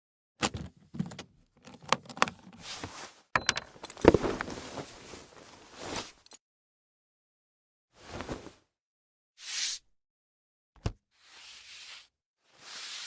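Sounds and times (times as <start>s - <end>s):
rustling: 4.0s - 6.2s.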